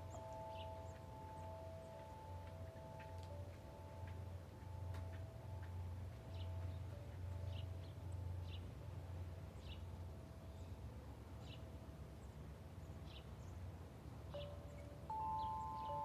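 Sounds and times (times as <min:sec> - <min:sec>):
wind chimes ringing: 0:00.0 - 0:08.4, 0:14.4 - 0:16.0
low steady rumble: 0:00.0 - 0:16.0
bird chirping: 0:14.3 - 0:16.0.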